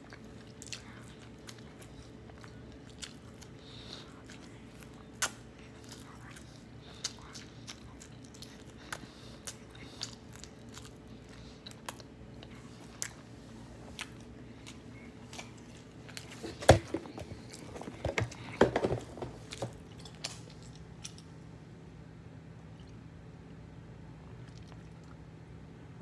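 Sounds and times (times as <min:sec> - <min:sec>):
chewing pizza crust: 0:00.0 - 0:21.6, 0:24.2 - 0:25.4
knocks and rustling: 0:16.4 - 0:19.8.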